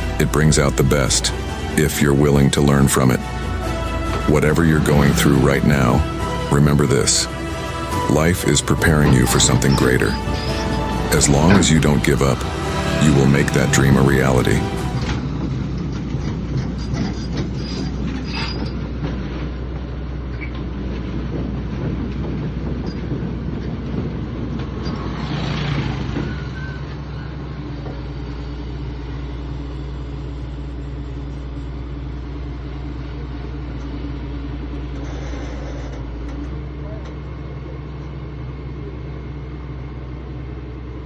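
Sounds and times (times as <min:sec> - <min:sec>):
heavy diesel engine running: 0:00.0 - 0:41.0
metal clanks and squeals: 0:16.1 - 0:19.0, 0:24.5 - 0:25.3, 0:25.9 - 0:27.9, 0:34.9 - 0:37.2.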